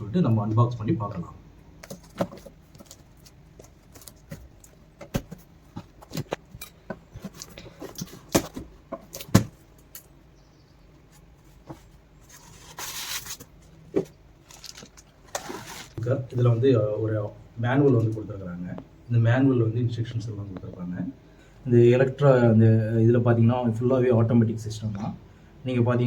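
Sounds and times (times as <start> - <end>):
packaging rustling: 1.8 - 6.5, 12.3 - 16.0
box knocks and clicks: 4.1 - 9.6.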